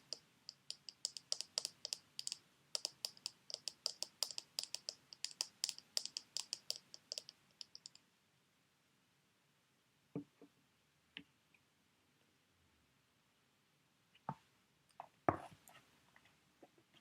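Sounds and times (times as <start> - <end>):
fingernail tapping on packets: 0.0 - 8.0.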